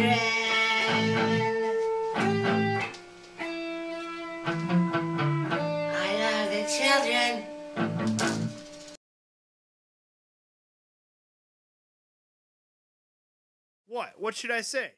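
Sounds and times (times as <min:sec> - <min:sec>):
person singing: 0:00.0 - 0:01.8
rock guitar chords and notes: 0:00.0 - 0:08.9.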